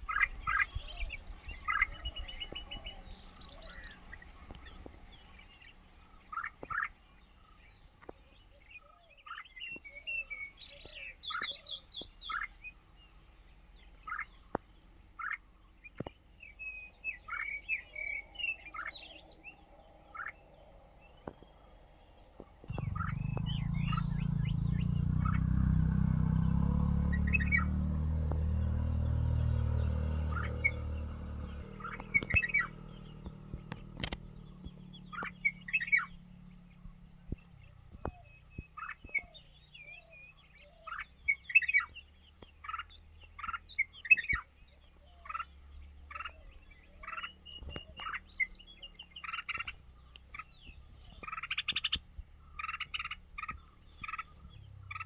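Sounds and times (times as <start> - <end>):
birds chirping: 0.0 - 55.0
low rumble: 19.6 - 38.7.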